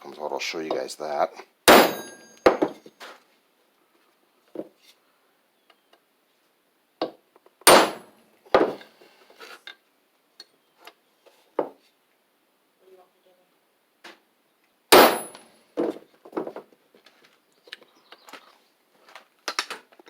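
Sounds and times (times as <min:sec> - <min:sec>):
hammer striking metal bolt: 0:01.7 - 0:02.8, 0:07.7 - 0:08.1, 0:14.9 - 0:15.4.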